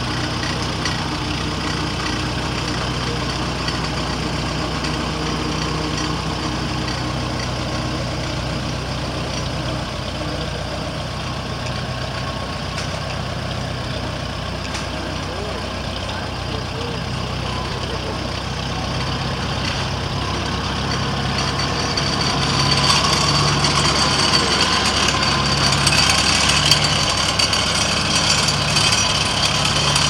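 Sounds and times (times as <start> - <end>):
tractor engine running: 0.0 - 30.0.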